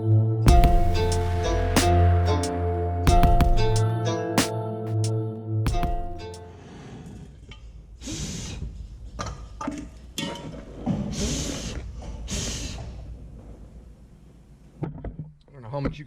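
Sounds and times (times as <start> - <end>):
sharp knocks: 0.5 - 2.5, 3.1 - 4.5, 5.7 - 6.4.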